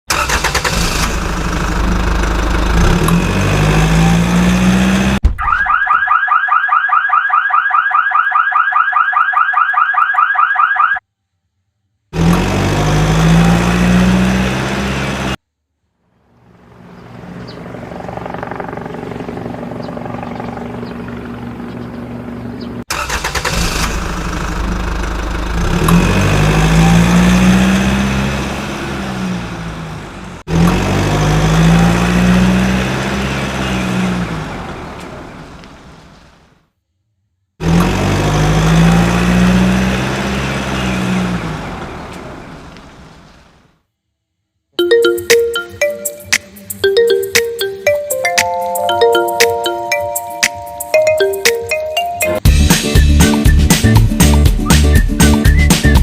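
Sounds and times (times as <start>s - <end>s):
engine revving: 0.1s - 5.2s, 12.1s - 15.4s, 16.6s - 35.3s, 37.6s - 42.6s, 52.4s - 56.0s
steady engine hum: 0.1s - 5.2s, 12.1s - 35.9s.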